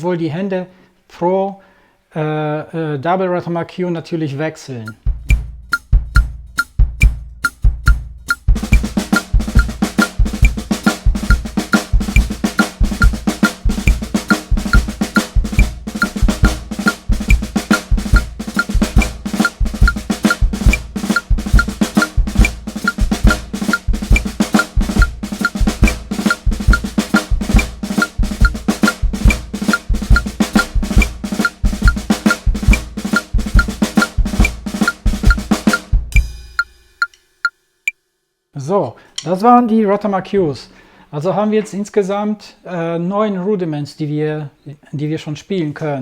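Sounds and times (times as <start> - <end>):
metronome clicking: 4.8 - 38.0
snare drum rudiments: 4.9 - 37.2
bass drum pulse: 5.0 - 36.5.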